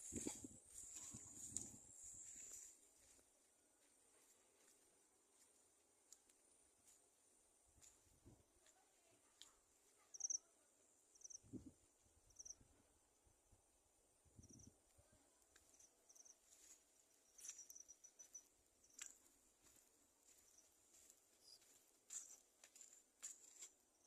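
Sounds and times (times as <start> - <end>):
cricket chirps: 10.1 - 10.5, 11.1 - 12.7, 14.3 - 14.8, 15.5 - 22.4.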